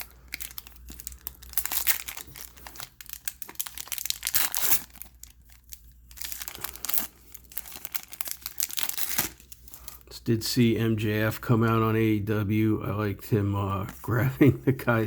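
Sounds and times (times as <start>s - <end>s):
wrapper crinkling: 0.0s - 10.1s.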